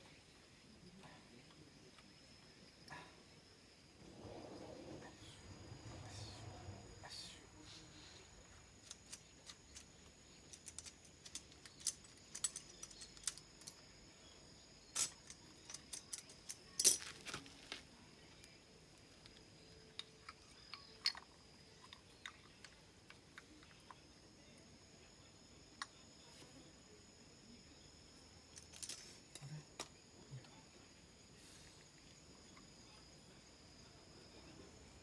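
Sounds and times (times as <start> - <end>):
metallic clicks of tools handled: 8.8 - 13.8, 15.0 - 17.4.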